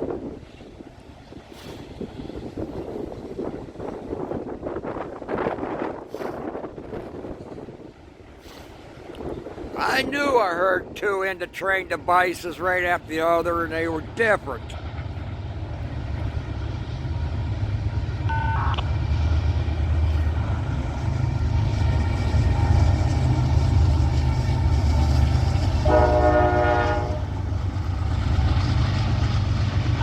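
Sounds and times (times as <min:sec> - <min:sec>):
freight train rumbling by: 0:00.0 - 0:30.0
locomotive horn: 0:25.6 - 0:27.4.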